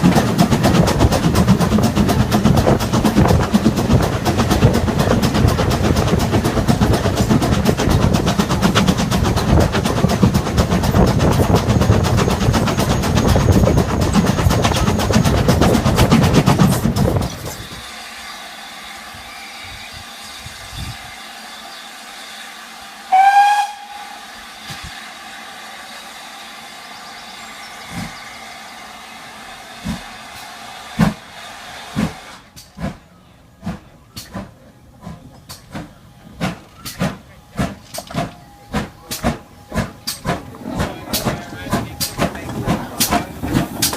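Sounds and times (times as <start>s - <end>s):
steam train rattling: 0.0s - 43.9s
steam whistle toot: 17.6s - 29.2s.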